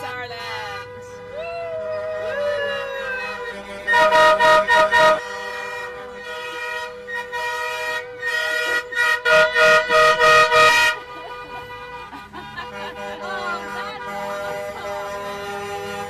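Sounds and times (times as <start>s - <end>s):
faint steady horn-like tone: 0.0s - 16.0s
vehicle horn short blasts: 3.3s - 16.0s.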